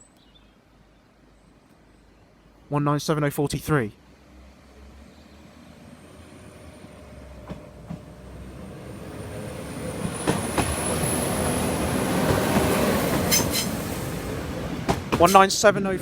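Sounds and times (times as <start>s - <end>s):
diesel train passing: 3.9s - 16.0s.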